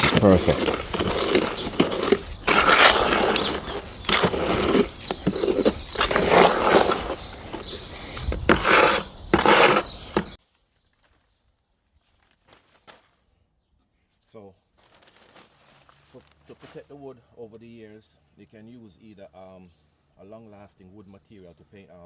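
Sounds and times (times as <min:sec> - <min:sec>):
cement stirred in a bucket: 0:00.0 - 0:10.4.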